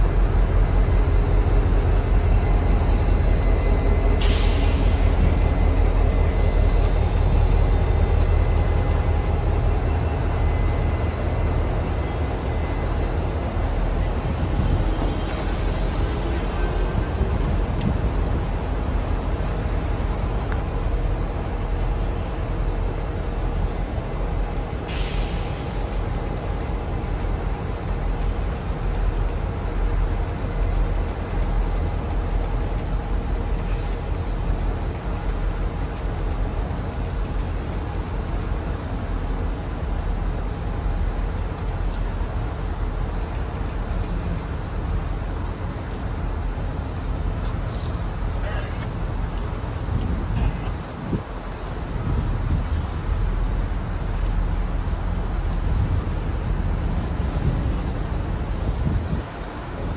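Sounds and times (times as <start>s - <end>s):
train rumbling: 0.0s - 59.9s
air hiss burst: 4.2s - 5.0s.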